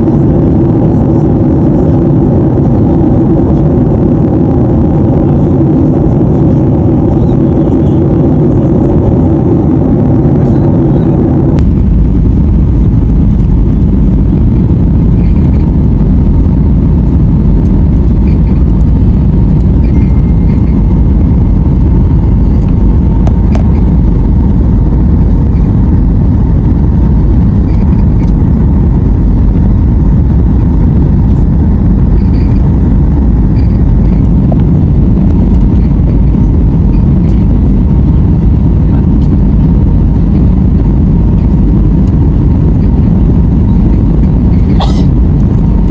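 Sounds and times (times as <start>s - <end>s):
airliner cabin engine rumble: 0.0s - 45.9s
faint steady whine: 0.0s - 45.9s.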